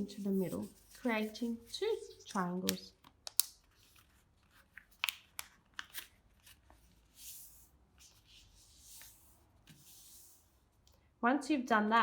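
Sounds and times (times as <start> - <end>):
paper rustling: 0.0 - 2.8.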